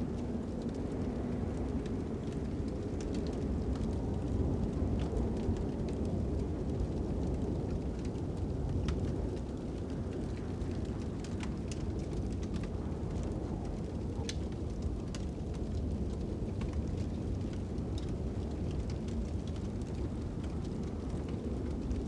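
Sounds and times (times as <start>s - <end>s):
fire crackling and popping: 0.0s - 22.0s
low rumble of wind: 0.0s - 22.0s.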